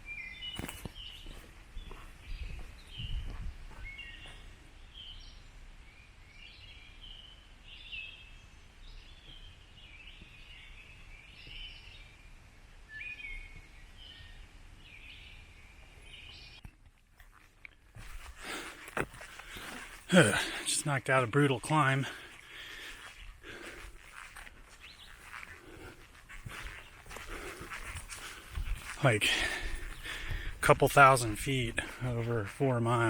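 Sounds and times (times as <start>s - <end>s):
songbirds singing: 0.0s - 16.9s, 17.6s - 33.0s
rustle: 22.1s - 30.2s.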